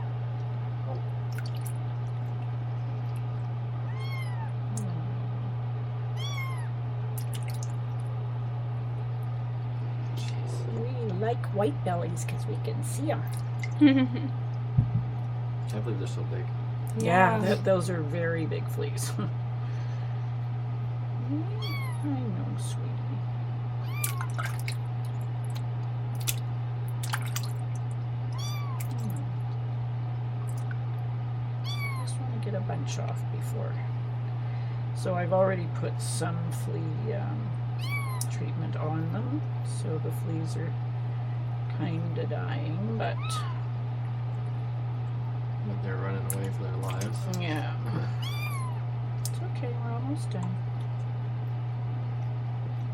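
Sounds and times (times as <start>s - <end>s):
steady low hum: 0.0s - 52.9s
kitten meowing: 3.8s - 4.6s, 6.2s - 6.7s, 21.5s - 22.1s, 23.8s - 24.4s, 28.3s - 29.0s, 31.6s - 32.2s, 37.8s - 38.3s, 43.1s - 43.7s, 48.1s - 48.8s.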